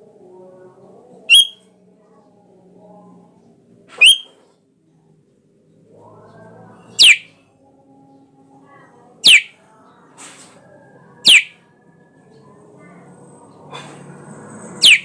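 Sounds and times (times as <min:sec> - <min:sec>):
bird sharp descending calls: 0:01.3 - 0:01.6, 0:04.0 - 0:04.3, 0:07.0 - 0:07.3, 0:09.2 - 0:09.6, 0:11.2 - 0:11.5, 0:14.8 - 0:15.0
soft bird twittering: 0:01.3 - 0:01.6, 0:04.0 - 0:04.4, 0:06.9 - 0:07.3, 0:09.2 - 0:09.6, 0:11.2 - 0:11.6, 0:14.7 - 0:15.0.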